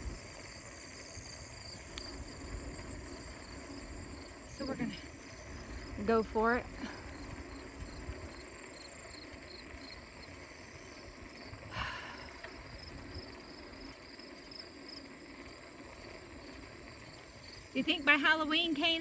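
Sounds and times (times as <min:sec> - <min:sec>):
wind rumble on microphone: 0:00.0 - 0:08.6
insects chirping: 0:00.0 - 0:19.0.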